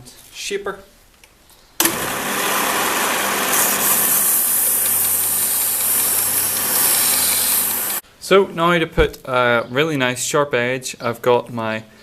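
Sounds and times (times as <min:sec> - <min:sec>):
electric grinder motor hum: 0:01.9 - 0:08.0
hiss of metal being ground: 0:03.5 - 0:08.0.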